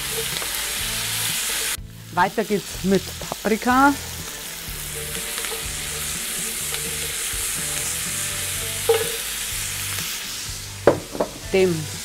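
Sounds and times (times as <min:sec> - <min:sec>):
food sizzling in a pot: 0:00.0 - 0:12.0
wooden spoon stirring: 0:04.9 - 0:07.7.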